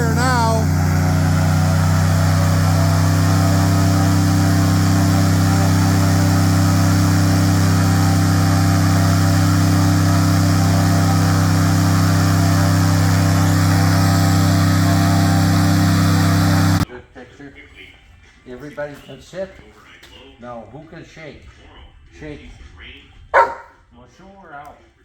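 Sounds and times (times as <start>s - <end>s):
airboat engine running at high speed: 0.0s - 16.8s.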